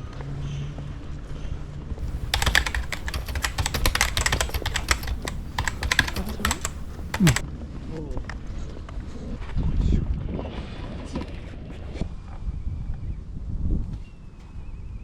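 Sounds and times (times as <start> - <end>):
rapid clatter of clicks: 2.0 - 7.4.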